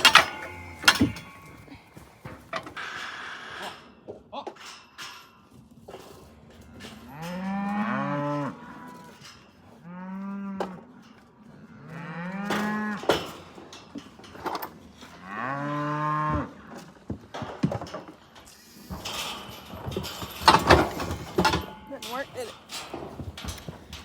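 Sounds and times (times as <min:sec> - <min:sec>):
cattle mooing: 0:00.0 - 0:01.9, 0:06.7 - 0:09.2, 0:11.6 - 0:13.1, 0:15.2 - 0:16.6.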